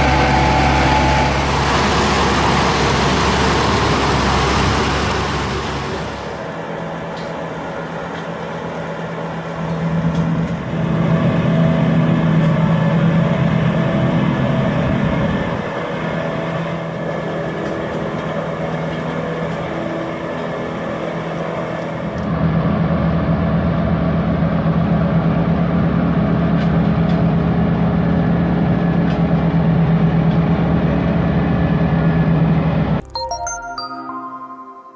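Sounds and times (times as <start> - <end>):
machinery noise: 0.0 - 7.2
tractor engine drone: 0.0 - 33.1.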